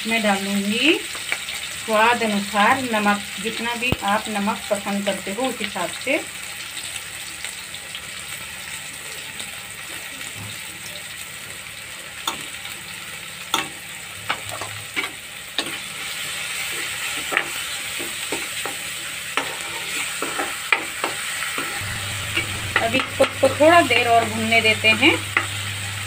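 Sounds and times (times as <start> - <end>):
vegetables sizzling in hot oil: 0.0 - 26.0
spoon knocking against pan: 25.0 - 25.6.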